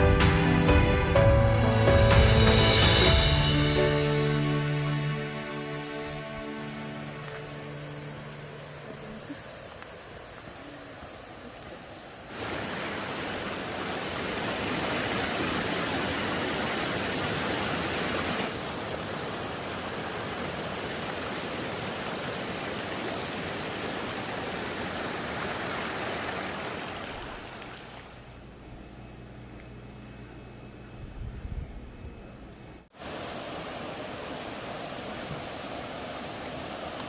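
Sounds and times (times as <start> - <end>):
stream rushing over rocks: 12.2 - 28.1, 33.0 - 37.0.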